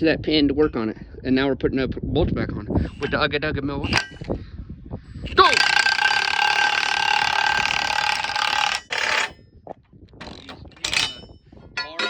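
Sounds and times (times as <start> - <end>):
impact wrench rattling: 2.8 - 3.2, 3.8 - 4.4, 5.3 - 9.4, 10.2 - 12.0
light metal knocks and clinks: 10.3 - 12.0.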